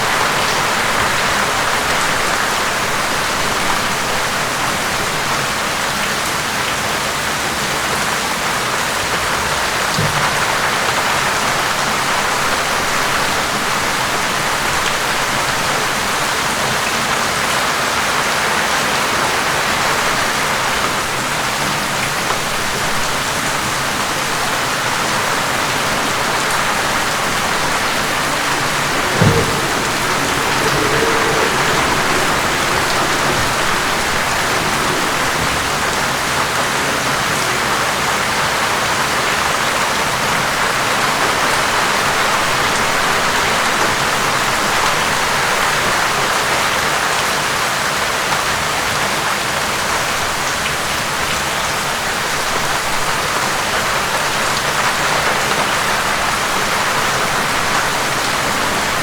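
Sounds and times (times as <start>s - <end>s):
heavy rainfall: 0.0s - 59.0s
low thump: 27.3s - 35.4s.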